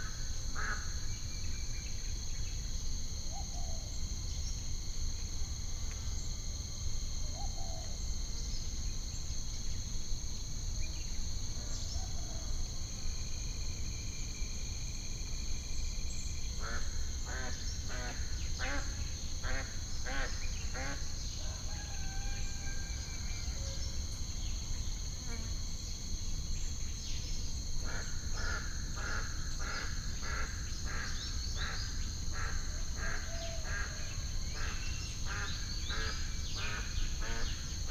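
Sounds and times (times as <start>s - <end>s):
insects chirping: 0.0s - 37.9s.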